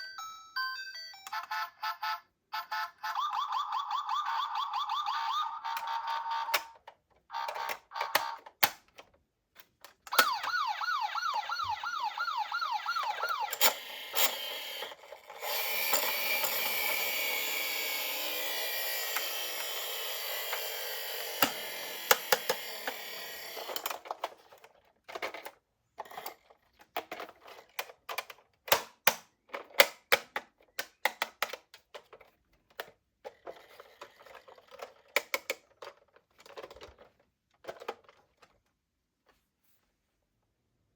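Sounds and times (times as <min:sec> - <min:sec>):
toy siren tone: 0:01.1 - 0:06.6, 0:10.1 - 0:23.7
rising siren yelp: 0:10.2 - 0:13.6.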